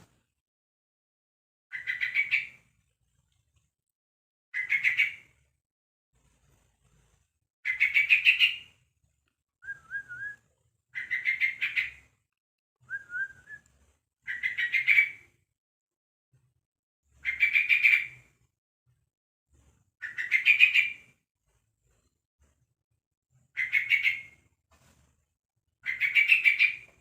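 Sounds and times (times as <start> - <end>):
quiet wavering whistle: 9.6 - 10.4, 12.9 - 13.7.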